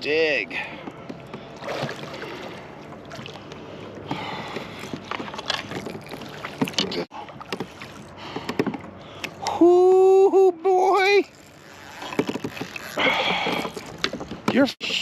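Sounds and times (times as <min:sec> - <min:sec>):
water splashing around kayak: 0:00.0 - 0:10.0, 0:10.6 - 0:15.0
knocks and clicks from hull: 0:00.7 - 0:02.1, 0:03.4 - 0:09.4, 0:12.0 - 0:15.0.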